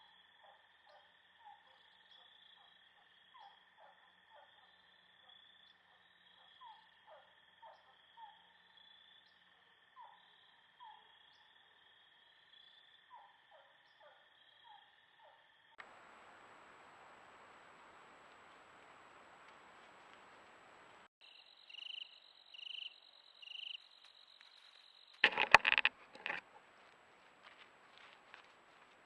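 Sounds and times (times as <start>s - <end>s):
insects trilling: 21.2s - 26.4s.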